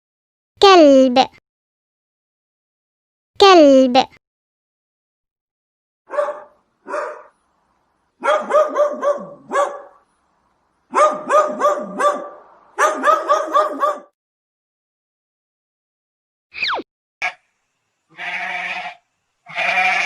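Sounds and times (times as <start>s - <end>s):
dog barking: 6.1s - 7.4s, 8.2s - 10.1s, 10.9s - 14.2s.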